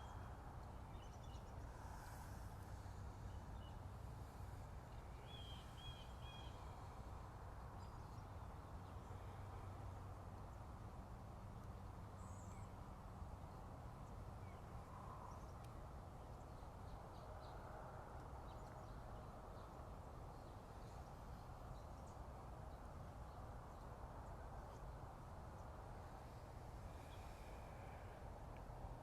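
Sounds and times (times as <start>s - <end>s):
low rushing background noise: 0.0s - 29.0s
faint bird chirps: 4.9s - 7.0s.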